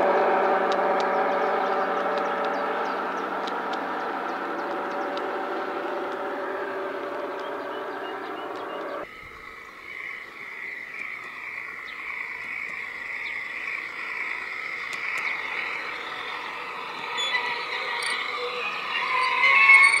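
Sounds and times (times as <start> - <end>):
model train running: 0.0 - 9.1, 11.6 - 20.0
frogs calling in chorus: 7.8 - 20.0.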